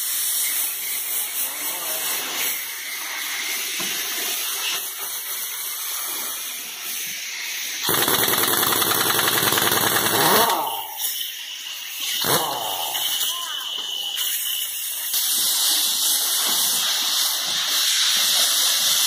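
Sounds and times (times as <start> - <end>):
compressed air hissing: 0.0 - 19.0
impact wrench hammering: 7.9 - 10.9.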